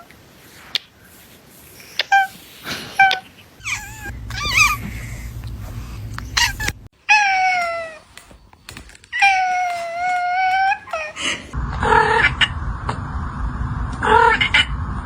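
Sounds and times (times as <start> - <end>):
kitten meowing: 3.0 - 5.0, 6.2 - 6.8
low rumble: 3.8 - 6.9, 11.6 - 15.0.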